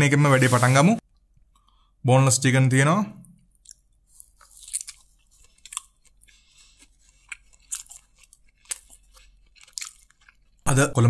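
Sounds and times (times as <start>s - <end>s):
chewing with mouth clicks: 3.4s - 10.7s.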